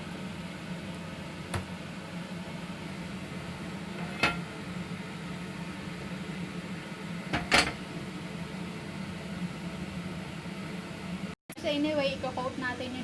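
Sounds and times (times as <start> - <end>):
steady low hum: 0.0 - 11.4
dishes and utensils clinking: 4.0 - 4.5, 7.3 - 7.8.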